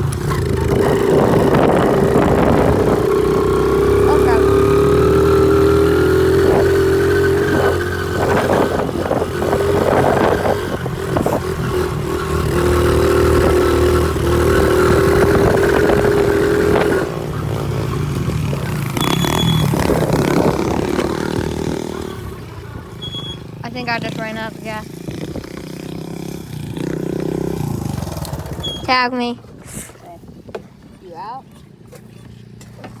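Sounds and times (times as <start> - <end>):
pit bike engine revving: 0.0 - 29.4.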